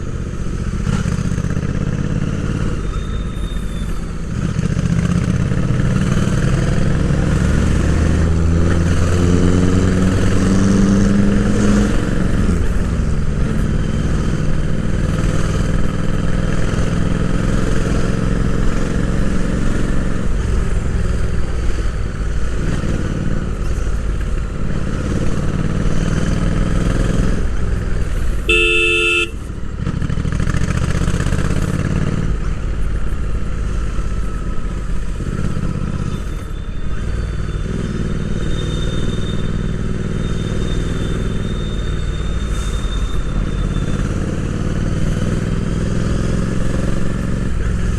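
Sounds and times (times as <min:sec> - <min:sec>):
motorcycle engine revving: 0:24.6 - 0:32.7
horn toot: 0:28.4 - 0:29.4.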